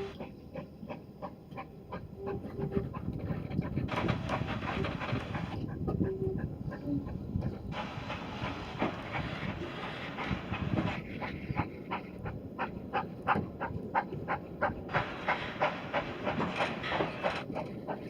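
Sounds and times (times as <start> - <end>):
steam hissing: 0.0 - 0.2, 3.9 - 5.6, 7.7 - 12.0, 12.9 - 18.0
train sharp clicks: 0.0 - 18.0.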